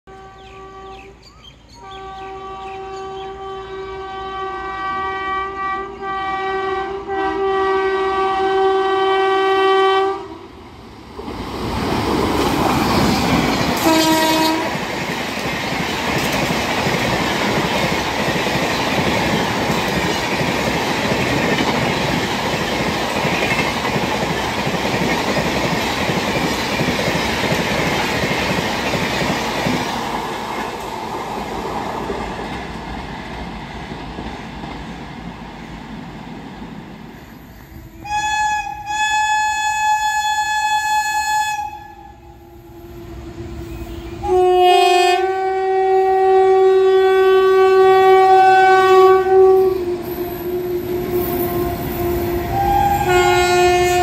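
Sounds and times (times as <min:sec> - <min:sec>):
train horn blasts: 0:00.0 - 0:01.2, 0:01.8 - 0:10.5, 0:13.8 - 0:14.9, 0:37.7 - 0:54.0
train rushing past: 0:01.8 - 0:39.0, 0:41.8 - 0:54.0
clickety-clack of coaches: 0:13.0 - 0:35.2.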